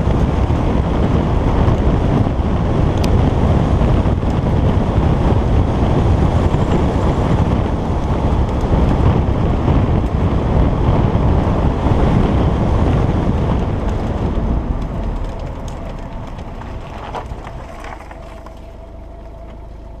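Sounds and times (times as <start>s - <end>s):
wind rushing on microphone: 0.0s - 19.7s
car engine hum: 0.0s - 20.0s
road rumble: 0.0s - 20.0s.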